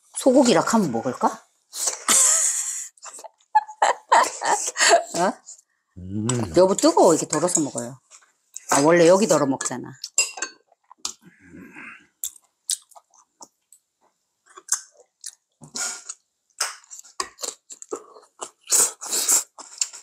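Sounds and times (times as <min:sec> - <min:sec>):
close-miked chewing: 0:12.2 - 0:20.0.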